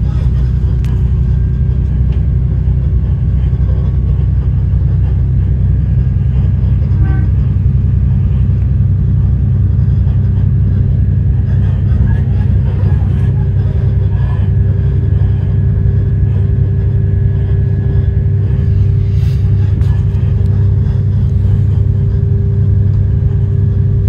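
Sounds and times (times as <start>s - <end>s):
diesel railcar rumbling: 0.0s - 24.0s.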